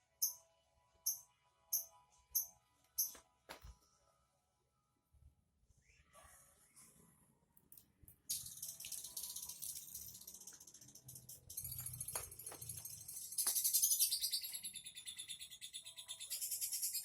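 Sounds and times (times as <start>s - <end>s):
songbird singing trills: 13.1s - 17.0s.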